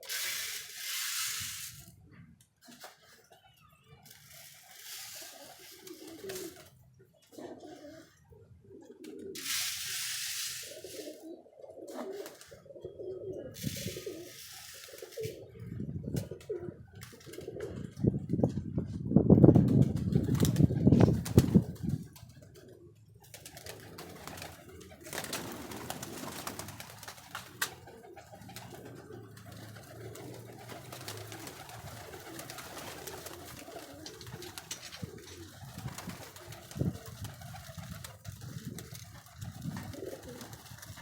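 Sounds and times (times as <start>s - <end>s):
pigeons cooing: 4.5s - 18.2s, 20.9s - 41.0s.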